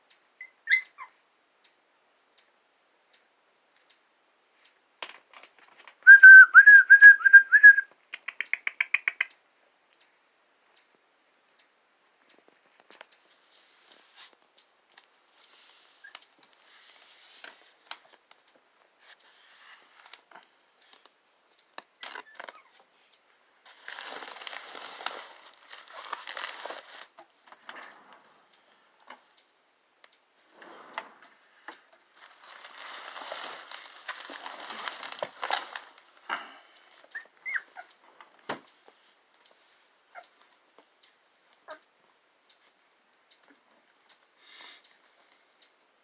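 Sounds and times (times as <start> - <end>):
puppy whining: 0.4 - 1.2, 37.0 - 38.0
puppies whimpering: 37.1 - 37.9.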